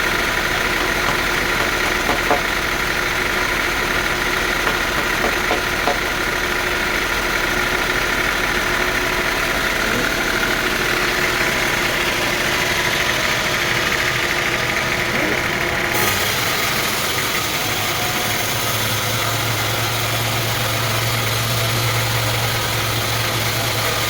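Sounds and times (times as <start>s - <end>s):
sawmill machinery drone and whine: 0.0s - 24.0s.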